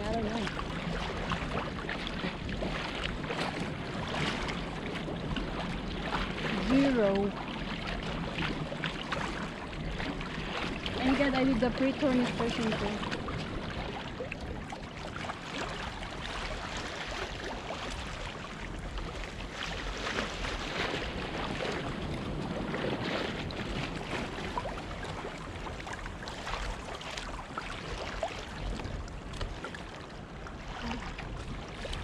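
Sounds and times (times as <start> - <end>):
water sloshing around kayak: 0.0 - 32.0
wind buffeting microphone: 0.0 - 32.0.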